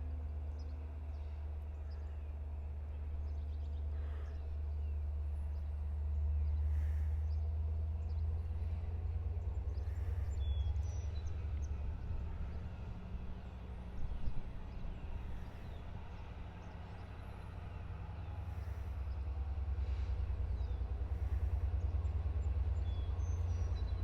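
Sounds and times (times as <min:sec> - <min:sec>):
diesel locomotive idling: 0:00.0 - 0:24.0
faint birds chirping: 0:00.1 - 0:24.0.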